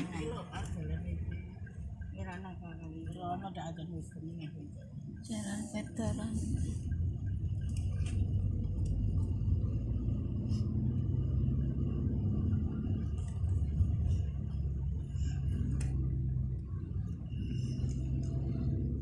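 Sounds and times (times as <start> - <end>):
vehicle rumble: 0.0 - 19.0.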